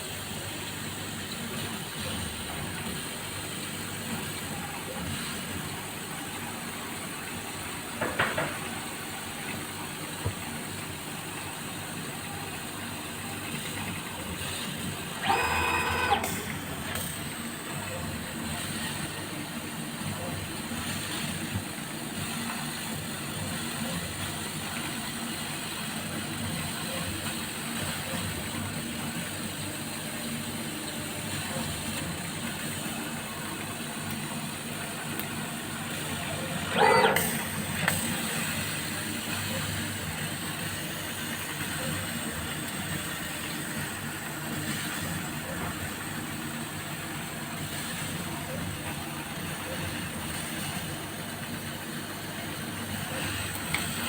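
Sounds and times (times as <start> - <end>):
laser cutter humming and hissing: 0.0 - 54.0.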